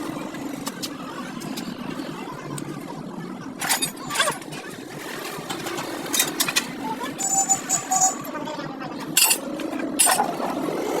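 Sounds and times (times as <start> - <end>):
steady mechanical hum: 0.0 - 11.0
metal tools clinking: 9.2 - 10.3.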